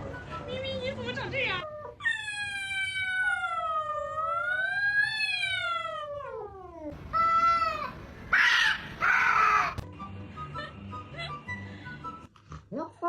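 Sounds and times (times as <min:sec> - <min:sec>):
cat yowling and meowing: 0:01.8 - 0:09.8.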